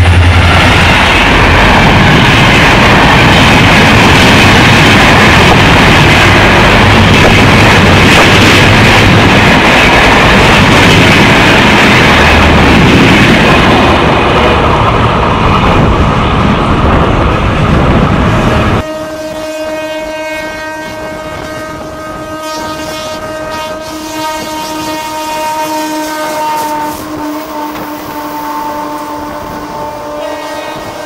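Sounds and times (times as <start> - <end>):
trains rushing at speed: 0.0 - 31.0
train horn chord: 18.8 - 31.0.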